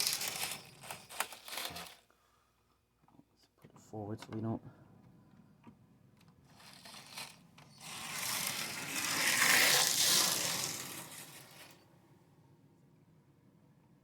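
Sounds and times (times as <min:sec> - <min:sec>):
model train motor whirring: 0:00.0 - 0:02.0, 0:06.5 - 0:11.8.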